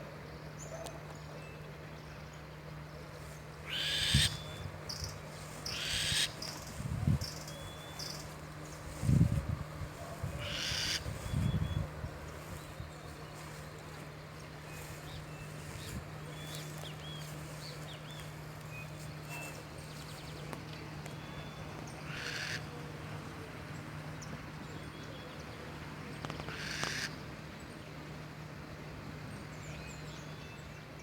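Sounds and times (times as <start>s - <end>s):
steady low hum: 0.0s - 26.3s
owl raspy hissing screeches: 3.7s - 4.4s, 5.6s - 6.4s, 10.4s - 11.1s, 22.1s - 22.6s.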